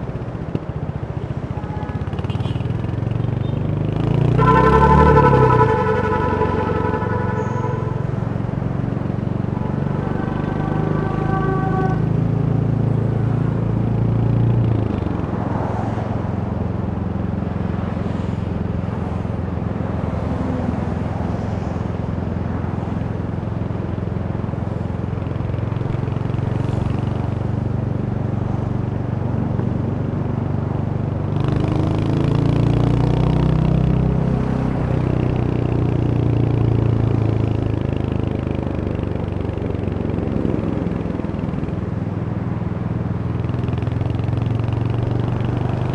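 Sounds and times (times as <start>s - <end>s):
motorcycle engine running: 0.0s - 12.0s, 23.3s - 45.9s
road and wind noise: 0.0s - 45.9s.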